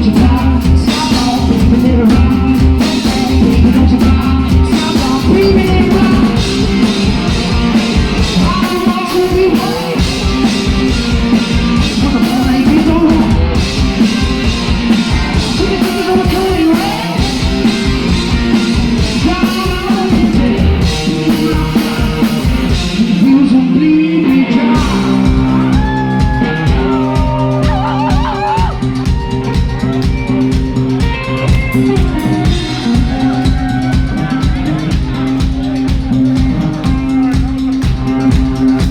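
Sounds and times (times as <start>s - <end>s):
drums pounding: 0.0s - 38.9s
guitar: 0.0s - 38.9s
live rock music: 0.0s - 38.9s
person singing and shouting: 8.2s - 10.3s, 15.1s - 30.2s, 30.8s - 37.8s.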